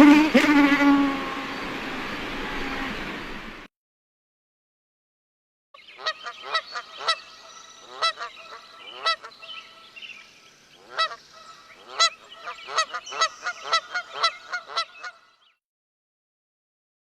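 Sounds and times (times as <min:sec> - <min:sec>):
bird honking calls: 0:00.0 - 0:01.8, 0:05.9 - 0:10.0, 0:10.8 - 0:15.4.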